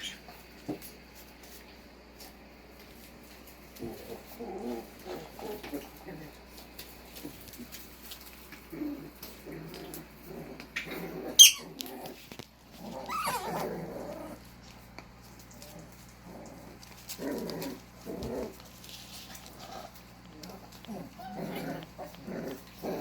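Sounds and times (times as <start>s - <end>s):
puppies play growling: 0.0s - 23.0s
puppy whining: 10.8s - 12.1s, 12.8s - 14.4s, 19.3s - 23.0s
puppy squealing: 11.3s - 11.8s, 13.0s - 13.7s.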